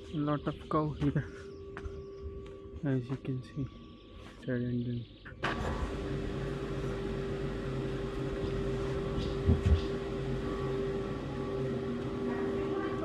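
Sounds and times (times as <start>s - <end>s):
steady mechanical hum: 5.4s - 13.0s.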